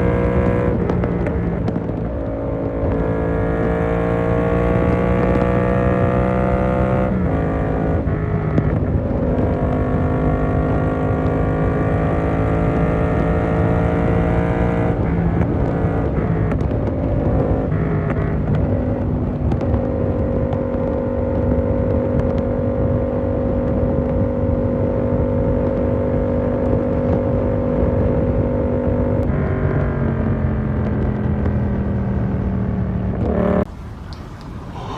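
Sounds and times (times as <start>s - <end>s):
motorcycle engine accelerating: 0.0s - 33.7s.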